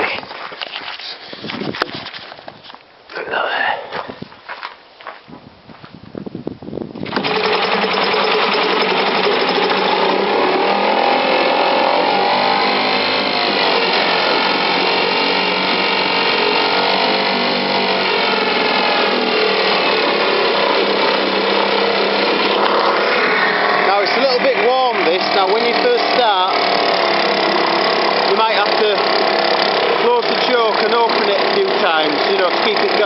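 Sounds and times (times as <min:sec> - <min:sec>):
outboard motor running fast: 0:07.0 - 0:33.0
starter rope pull: 0:07.0 - 0:33.0.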